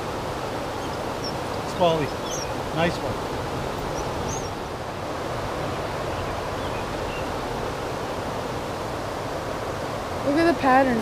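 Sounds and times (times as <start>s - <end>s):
creek water over rocks: 0.0s - 11.0s
faint high bird chirps: 0.7s - 2.6s, 3.8s - 4.6s.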